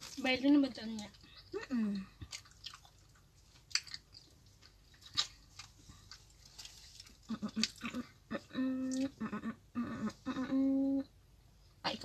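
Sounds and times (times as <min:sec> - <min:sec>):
people chewing sandwiches: 0:00.0 - 0:10.9
bread crunching: 0:02.2 - 0:08.1.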